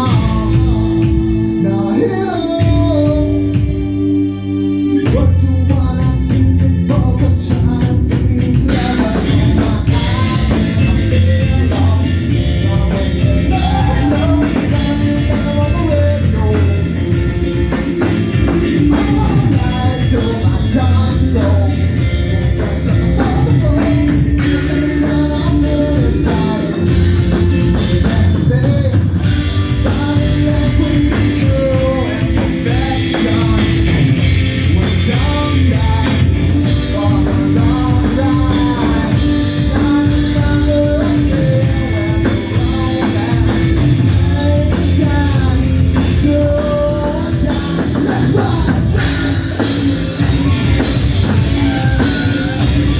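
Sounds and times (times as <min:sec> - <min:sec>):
drums: 0:00.0 - 0:52.9
guitar: 0:00.0 - 0:52.9
person singing: 0:00.0 - 0:52.9.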